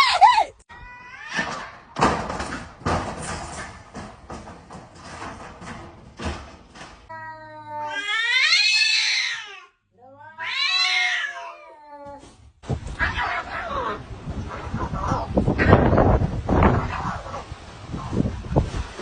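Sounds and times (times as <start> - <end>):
cat yowling: 7.1 - 12.2, 13.0 - 14.0.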